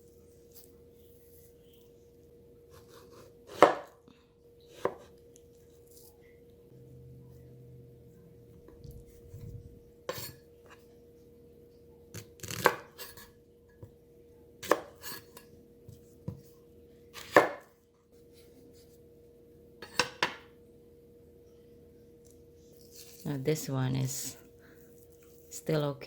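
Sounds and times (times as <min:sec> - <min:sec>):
knife slicing plantain: 0:02.7 - 0:04.0, 0:04.7 - 0:05.1, 0:12.2 - 0:13.3, 0:14.6 - 0:15.4, 0:17.2 - 0:17.7.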